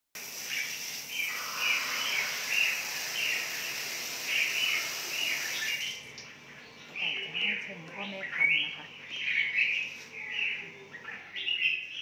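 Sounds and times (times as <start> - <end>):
steady high hiss: 0.2 - 6.0
birds chirping: 0.2 - 12.0.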